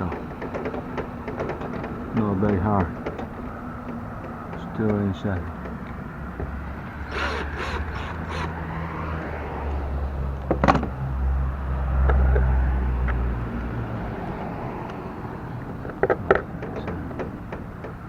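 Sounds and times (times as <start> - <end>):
sharp knocks: 0.0 - 8.6, 15.6 - 18.0
passing motor vehicle rumble: 0.0 - 18.0.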